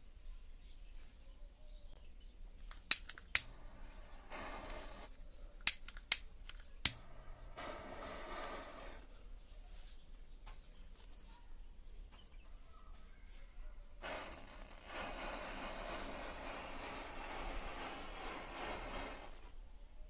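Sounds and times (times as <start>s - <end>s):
matchsticks popping: 2.6s - 9.0s, 14.0s - 19.5s
matchsticks fizzing: 2.7s - 5.1s, 14.0s - 19.5s.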